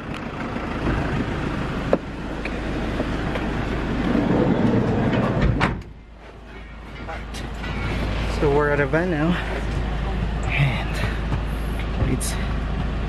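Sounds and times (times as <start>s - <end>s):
vehicle rumble and hiss: 0.0s - 13.0s.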